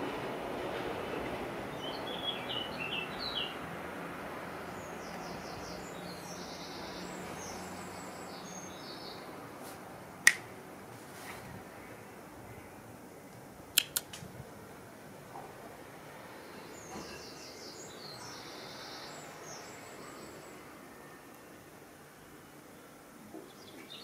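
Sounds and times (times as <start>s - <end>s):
sharp click: 10.3s - 10.5s, 13.8s - 14.3s.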